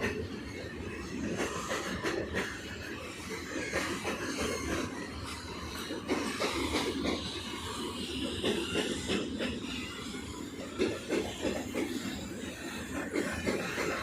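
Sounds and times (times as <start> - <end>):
train rumbling on track: 0.0 - 14.0.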